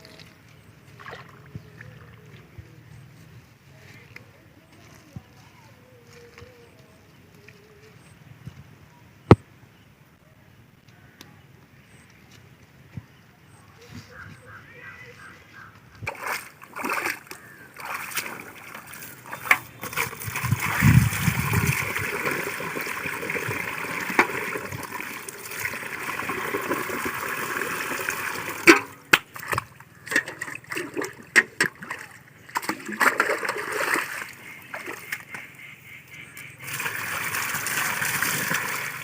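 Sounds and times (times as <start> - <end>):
water splashing and sloshing: 0.0 - 2.6, 16.0 - 35.7, 36.5 - 39.0
flowing water: 16.1 - 35.3, 36.6 - 39.0.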